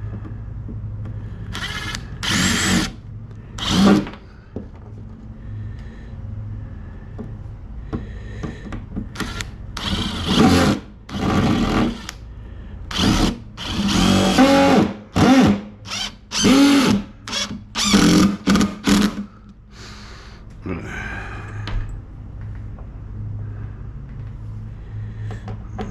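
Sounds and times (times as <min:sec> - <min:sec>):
power drill motor bursts: 0:01.5 - 0:03.0, 0:03.6 - 0:04.2, 0:09.1 - 0:12.2, 0:12.9 - 0:19.3.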